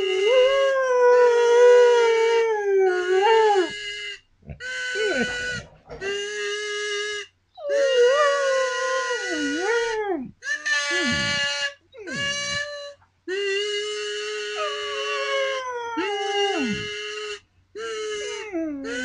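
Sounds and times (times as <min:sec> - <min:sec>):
dog howling: 0:00.0 - 0:03.8, 0:04.5 - 0:06.2, 0:07.6 - 0:12.7, 0:14.5 - 0:17.1, 0:17.8 - 0:19.0
kazoo buzzing notes: 0:02.8 - 0:07.3, 0:08.1 - 0:19.0.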